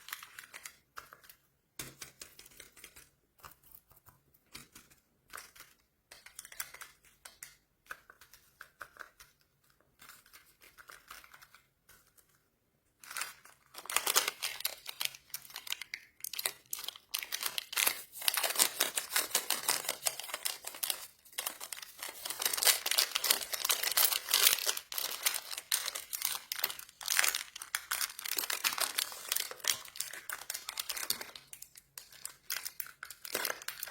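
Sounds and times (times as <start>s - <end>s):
plastic wrappers crinkling and tearing: 0.0s - 1.3s, 13.0s - 33.9s.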